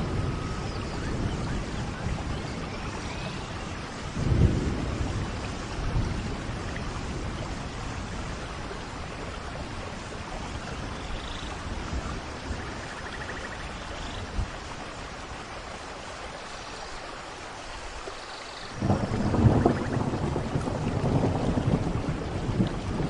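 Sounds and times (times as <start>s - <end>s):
distant thunder rumble: 0.0s - 13.7s, 18.8s - 23.0s
rain falling on foliage: 0.0s - 23.0s.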